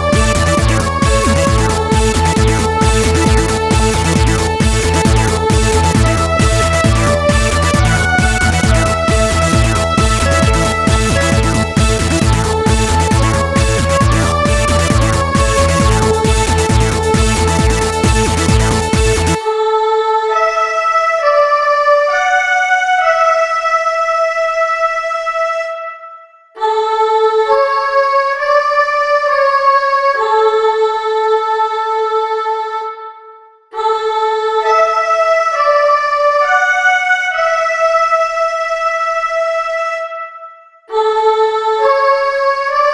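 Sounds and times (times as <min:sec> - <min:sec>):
techno beat: 0:00.0 - 0:19.5.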